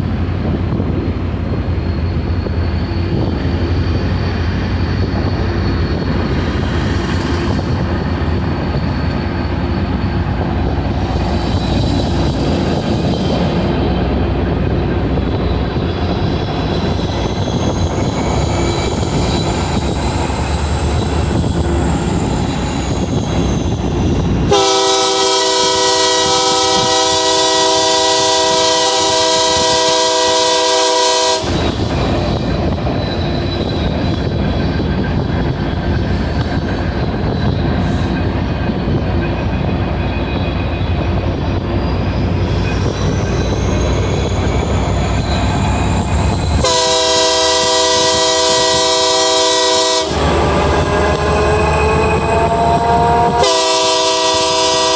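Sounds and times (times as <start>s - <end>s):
diesel train rolling on rails: 0.0s - 54.9s
long locomotive horn blast: 24.5s - 31.7s, 46.6s - 54.9s.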